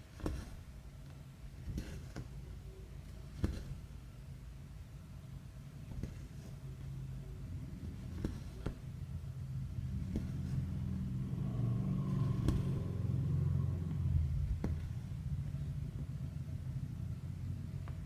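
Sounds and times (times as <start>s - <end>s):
low engine rumble with hum: 6.8s - 18.0s.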